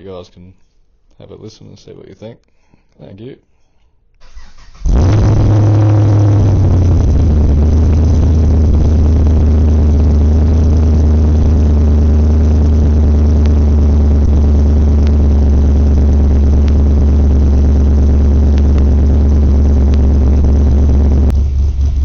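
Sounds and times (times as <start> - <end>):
supercharged car engine idling: 4.8 - 22.0.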